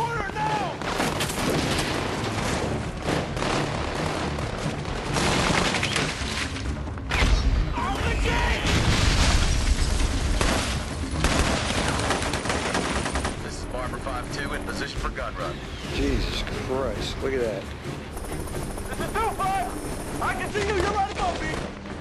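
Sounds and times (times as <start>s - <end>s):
gunfire: 0.7s - 6.3s, 10.3s - 13.5s
people shouting: 7.8s - 8.8s.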